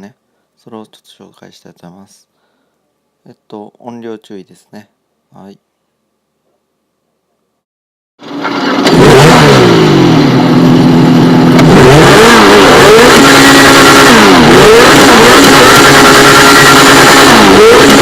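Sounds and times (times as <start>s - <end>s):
car engine revving: 8.2s - 18.0s.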